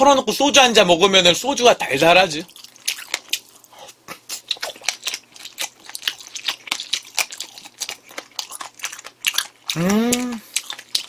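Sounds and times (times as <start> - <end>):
person chewing crunchy food: 2.4 - 11.0.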